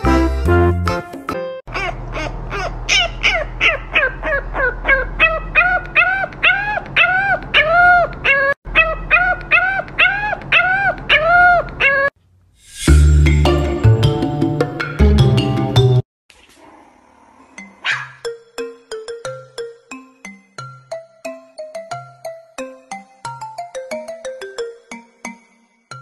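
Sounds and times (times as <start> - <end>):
puppy yipping: 1.7 - 12.1, 17.8 - 18.2.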